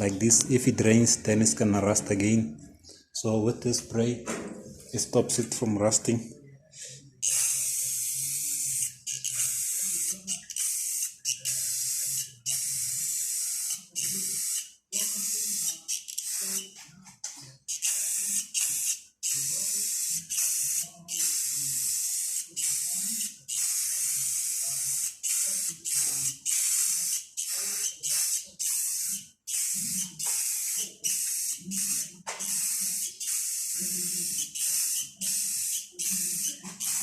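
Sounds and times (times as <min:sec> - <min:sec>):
spray can hissing: 0:07.3 - 0:16.8, 0:17.7 - 0:37.0.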